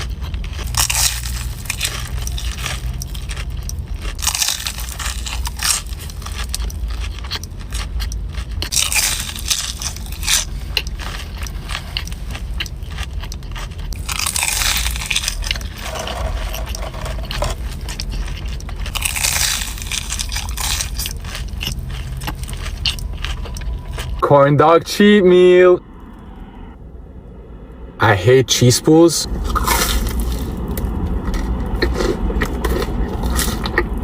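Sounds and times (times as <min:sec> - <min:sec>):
chewing clicks: 0:00.0 - 0:24.2
crunchy bites: 0:00.0 - 0:24.2
low hum: 0:00.0 - 0:34.0.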